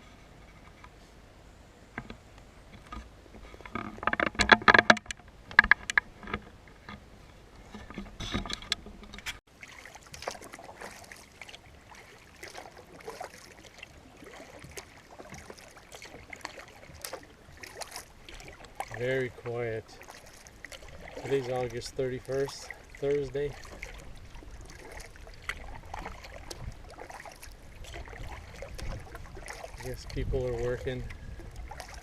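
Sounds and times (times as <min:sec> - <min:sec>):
canoe paddle strokes in water: 0:01.9 - 0:32.0
sharp knocks and clatter: 0:03.6 - 0:07.0
water splashes and drips: 0:07.6 - 0:32.0.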